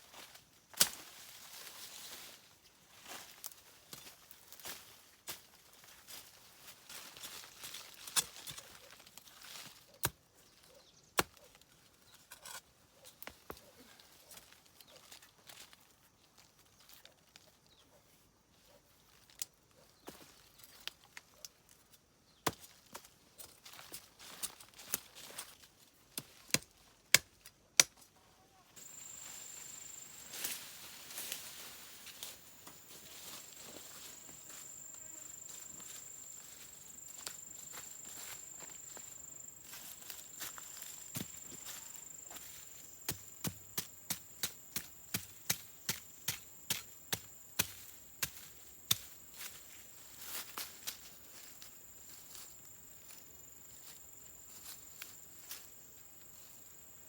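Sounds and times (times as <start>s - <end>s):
outdoor hiss: 28.8s - 43.0s.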